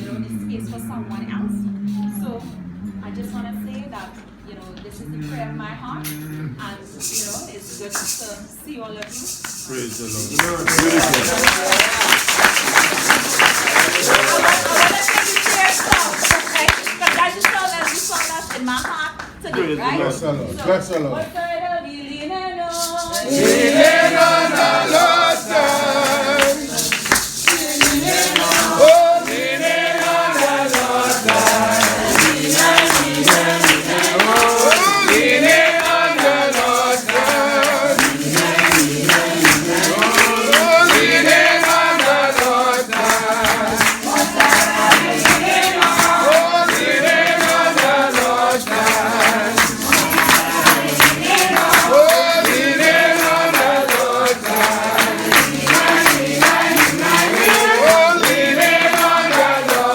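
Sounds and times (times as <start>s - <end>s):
steady percussive beat: 0.0s - 19.5s, 22.7s - 59.9s
congregation singing a hymn: 9.5s - 17.0s, 22.8s - 59.9s.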